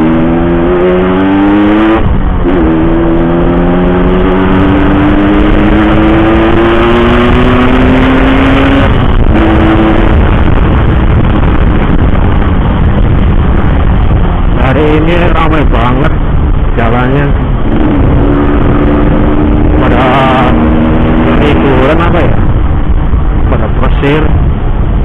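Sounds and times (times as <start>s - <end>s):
motorcycle engine accelerating: 0.0s - 25.0s
wind and road noise: 0.0s - 25.0s.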